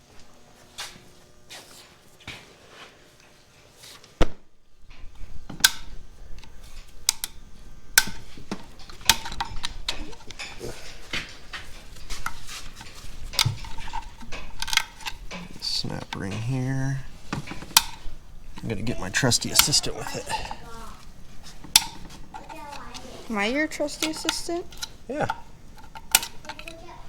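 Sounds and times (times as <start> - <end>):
metal tools clinking and scraping: 8.1 - 27.0.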